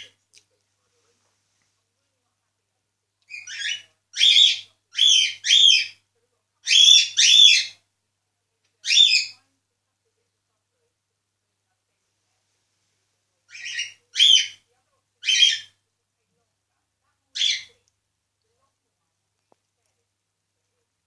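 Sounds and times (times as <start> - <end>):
cockatiel chirpy calls: 3.3 - 6.0, 6.6 - 7.8, 8.8 - 9.4, 13.5 - 14.6, 15.2 - 15.7.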